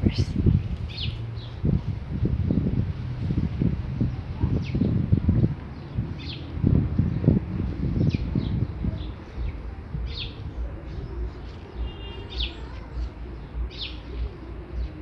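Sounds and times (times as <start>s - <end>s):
small birds chirping: 0.0s - 15.0s
wind on microphone: 0.0s - 15.0s.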